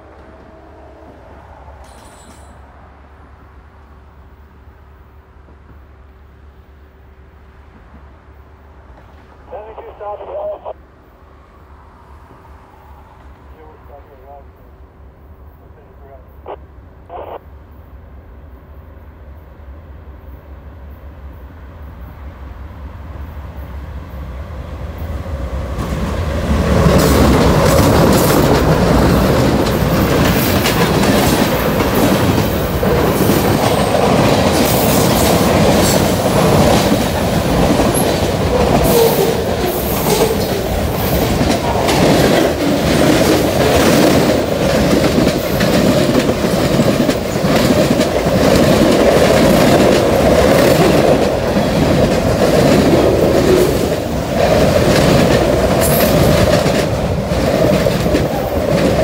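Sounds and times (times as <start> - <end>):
diesel locomotives: 0.0 - 59.0
freight cars rolling past: 21.8 - 59.0
wheels clicking over rail joints: 26.6 - 59.0.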